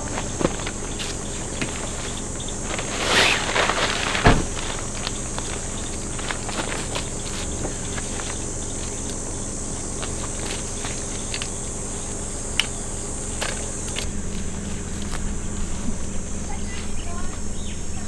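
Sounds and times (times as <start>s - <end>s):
insects droning: 0.0s - 18.0s
rustling: 0.0s - 18.0s
thump: 4.2s - 4.8s.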